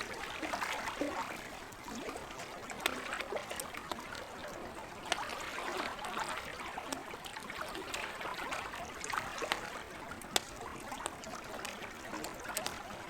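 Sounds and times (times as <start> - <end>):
campfire crackling and popping: 0.0 - 13.0
lake water lapping: 0.0 - 13.0.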